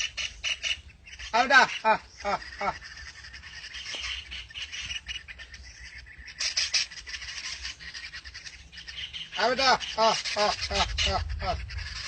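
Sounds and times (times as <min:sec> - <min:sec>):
many birds chirping: 0:00.0 - 0:12.0.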